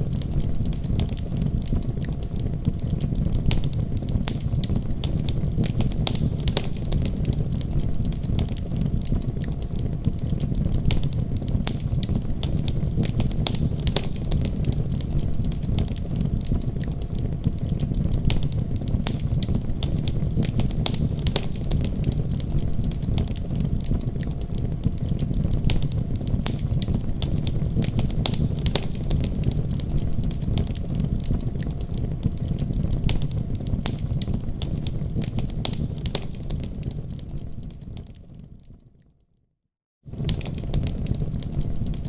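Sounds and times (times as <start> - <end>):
wood fire burning: 0.0 - 38.9, 40.1 - 42.0.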